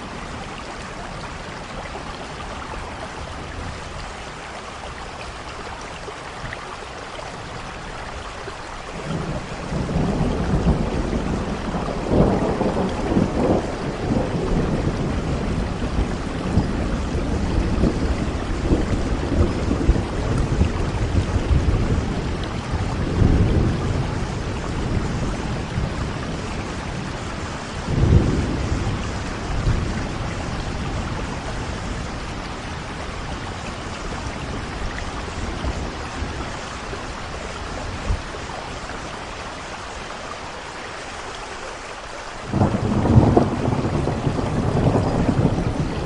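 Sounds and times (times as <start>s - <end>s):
heavy rain: 0.0s - 46.0s
thunder rumbling: 9.0s - 39.3s, 42.4s - 46.0s.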